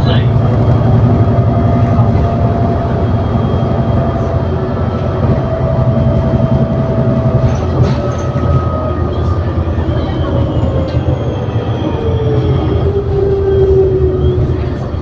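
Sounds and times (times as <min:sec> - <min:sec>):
bus drivetrain rumble: 0:00.0 - 0:15.0.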